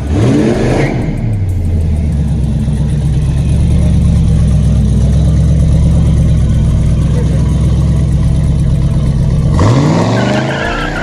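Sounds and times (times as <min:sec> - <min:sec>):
car engine idling after rev: 0:00.0 - 0:11.0.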